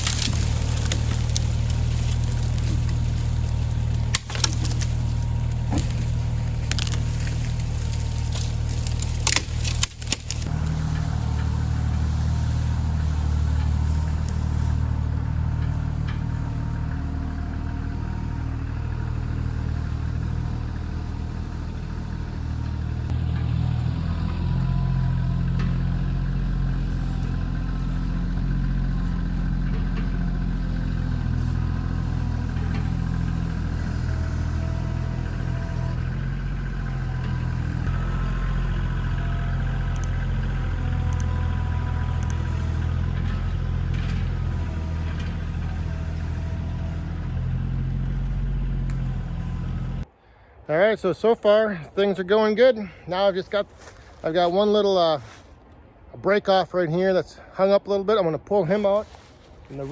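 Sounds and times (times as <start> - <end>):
tractor diesel engine running: 0.0 - 56.1.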